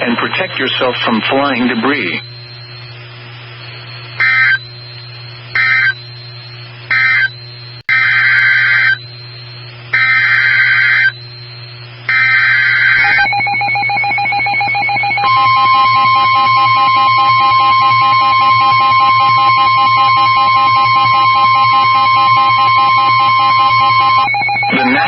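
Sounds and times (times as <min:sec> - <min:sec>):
harsh digital data bursts: 0:00.0 - 0:02.9, 0:12.1 - 0:25.0
steady warning alarm tone: 0:00.0 - 0:25.0.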